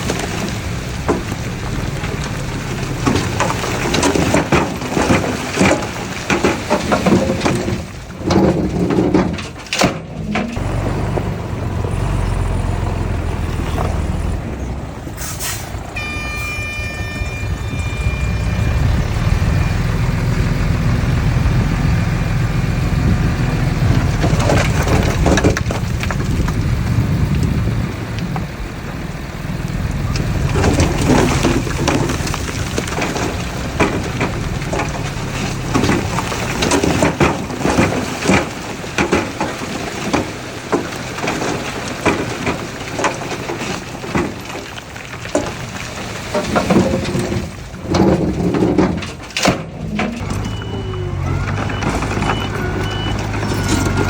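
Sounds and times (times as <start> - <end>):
rapid clattering and knocking: 0.0 - 11.3, 20.7 - 27.6, 30.2 - 50.6
diesel engines running: 0.0 - 54.0
high squeal: 15.2 - 21.2, 50.2 - 54.0.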